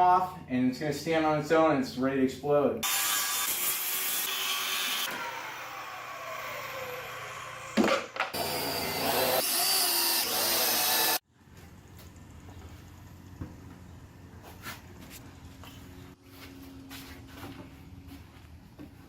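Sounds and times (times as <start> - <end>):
power tool whining: 2.8 - 11.2.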